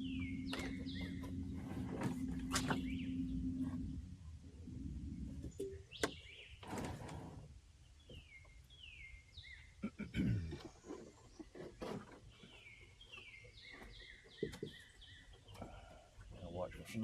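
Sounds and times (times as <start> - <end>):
electric boat motor humming: 0.0 - 5.6
birds chirping: 0.0 - 7.1, 7.8 - 17.0.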